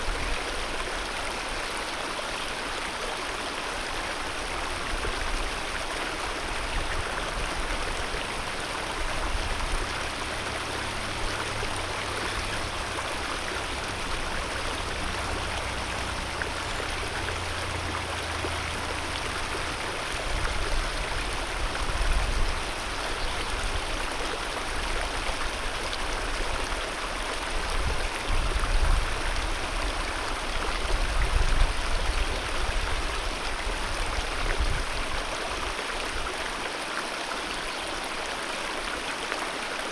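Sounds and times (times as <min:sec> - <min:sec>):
mountain river flowing: 0:00.0 - 0:39.9
low rumbling: 0:07.0 - 0:22.2.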